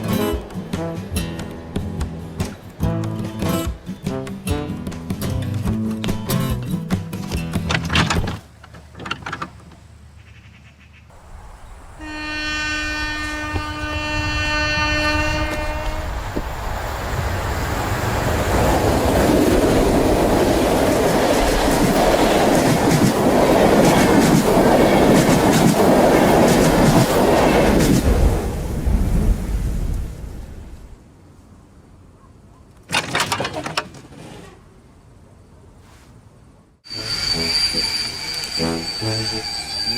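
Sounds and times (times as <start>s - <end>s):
wheels clattering on rails: 0.0s - 10.0s, 15.3s - 28.4s
train horn blast: 0.7s - 1.4s, 12.0s - 16.2s, 36.9s - 39.9s.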